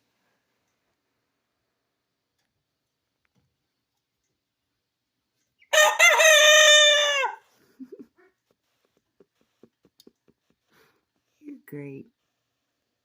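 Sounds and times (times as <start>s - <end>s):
rooster crowing: 5.7s - 7.5s.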